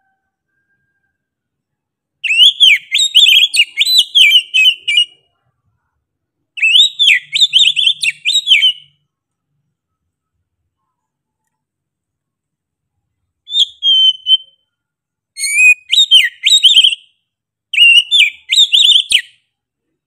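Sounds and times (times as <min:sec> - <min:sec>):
bird singing whistled notes: 0:02.2 - 0:05.3, 0:06.6 - 0:09.0, 0:13.5 - 0:14.8, 0:15.4 - 0:19.5.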